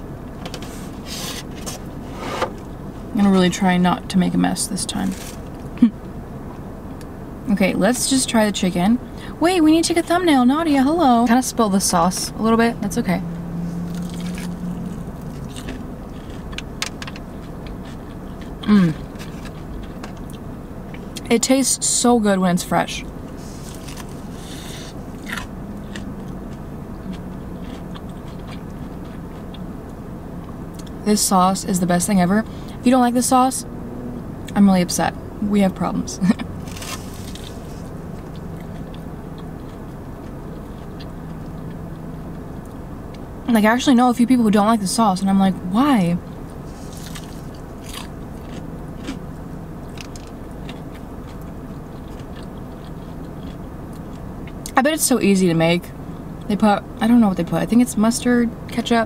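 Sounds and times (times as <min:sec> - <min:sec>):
low steady hum: 0:00.0 - 0:59.0
crunchy chewing of fried food: 0:13.5 - 0:21.2, 0:23.1 - 0:31.0, 0:36.4 - 0:43.3, 0:46.2 - 0:54.8.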